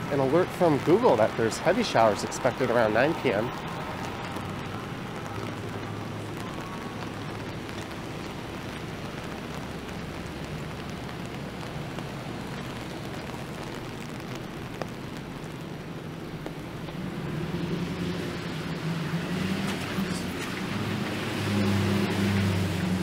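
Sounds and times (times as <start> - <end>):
rain hiss: 0.0 - 23.0
tyres on wet road: 0.0 - 23.0.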